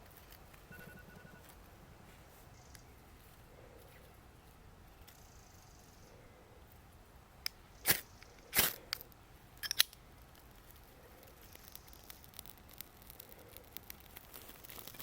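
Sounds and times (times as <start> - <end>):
faint steady background: 0.0 - 15.0
sharp clicks and crunches: 7.4 - 15.0.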